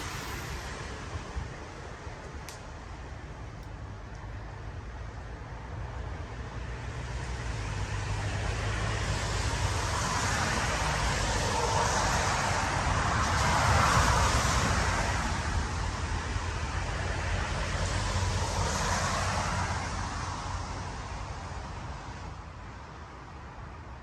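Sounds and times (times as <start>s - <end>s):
road vehicle passing: 0.0s - 3.2s, 6.3s - 22.0s.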